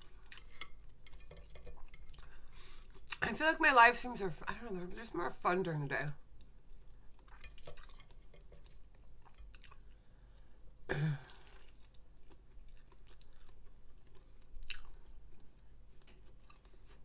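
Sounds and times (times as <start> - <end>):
person chewing: 0.0 - 3.2, 6.4 - 10.4, 11.2 - 17.0.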